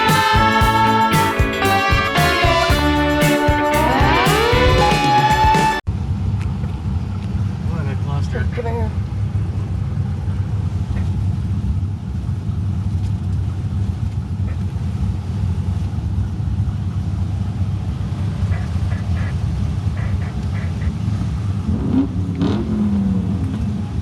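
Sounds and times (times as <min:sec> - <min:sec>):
car engine running: 0:00.0 - 0:05.8.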